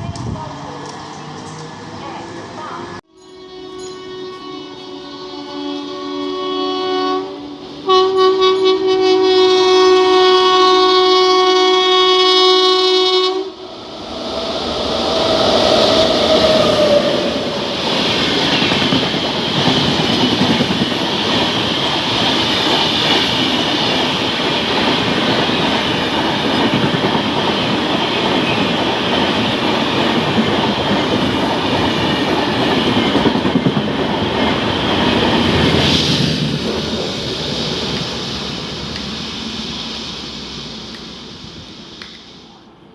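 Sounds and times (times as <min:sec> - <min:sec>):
train passing at speed: 0:00.0 - 0:42.9
train horn blasts: 0:03.1 - 0:13.6
wheels clickety-clack on rail joints: 0:17.8 - 0:38.2.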